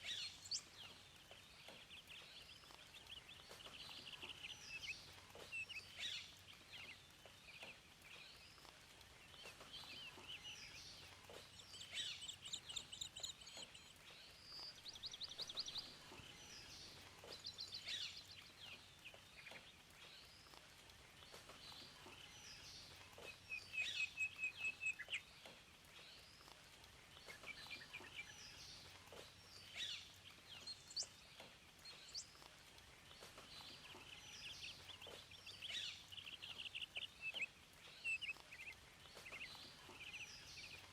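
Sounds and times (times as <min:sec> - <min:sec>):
faint steady hiss: 0:00.0 - 0:40.9
songbirds singing: 0:00.0 - 0:40.9.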